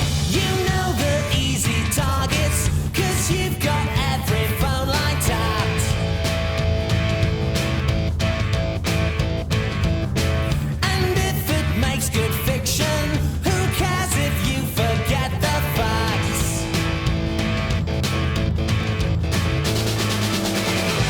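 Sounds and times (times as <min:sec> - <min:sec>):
rock music: 0:00.0 - 0:21.0
wavering lead guitar melody: 0:05.6 - 0:10.5, 0:15.1 - 0:21.0.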